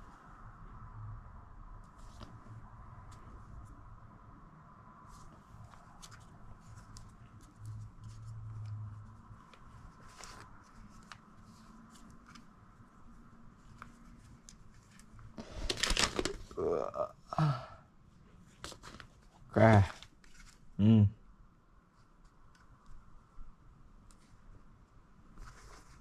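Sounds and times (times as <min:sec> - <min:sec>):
rustling scrape: 0:05.0 - 0:12.5, 0:25.3 - 0:26.0.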